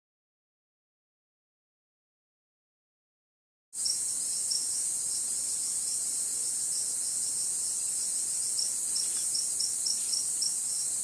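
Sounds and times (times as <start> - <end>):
insect chorus hissing: 3.8 - 11.0
pulsing insect chirp: 3.8 - 11.0.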